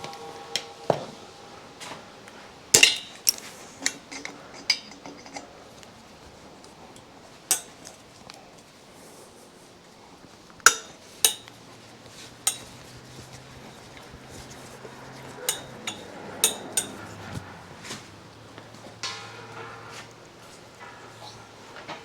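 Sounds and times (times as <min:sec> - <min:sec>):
metal tools clinking on metal: 0:02.8 - 0:06.0, 0:06.8 - 0:08.0, 0:10.7 - 0:11.6, 0:12.4 - 0:17.4.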